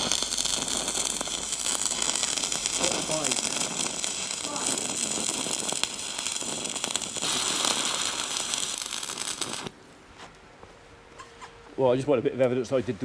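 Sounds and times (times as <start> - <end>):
welding arc crackling: 0.0 - 9.8.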